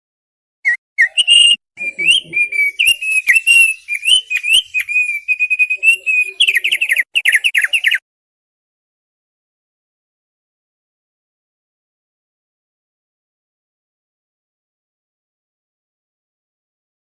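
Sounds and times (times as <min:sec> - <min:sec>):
bird singing whistled notes: 0:00.6 - 0:08.0.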